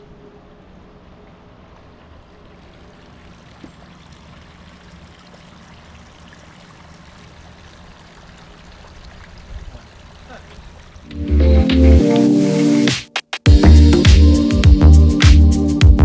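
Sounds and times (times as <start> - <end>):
running water: 1.3 - 12.8.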